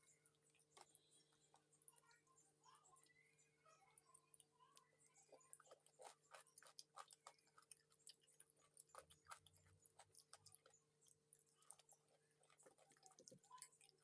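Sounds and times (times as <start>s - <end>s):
person chewing and sucking: 5.5s - 14.0s.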